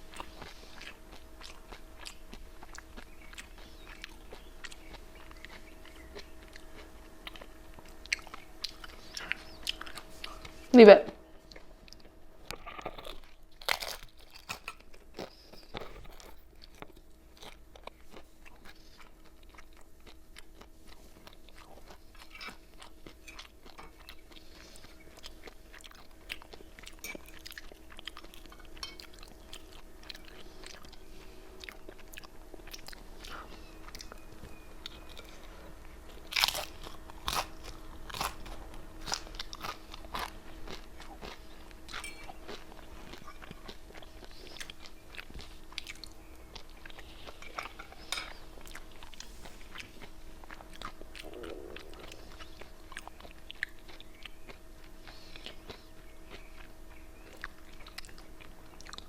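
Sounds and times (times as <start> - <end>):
crunching crispy chips: 12.6 - 18.9, 36.1 - 46.2.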